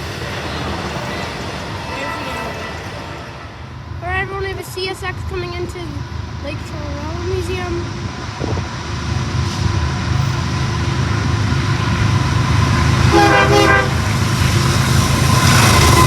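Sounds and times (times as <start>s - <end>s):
diesel locomotive engine rumble: 0.0s - 16.0s
locomotive horn blast: 13.0s - 14.2s.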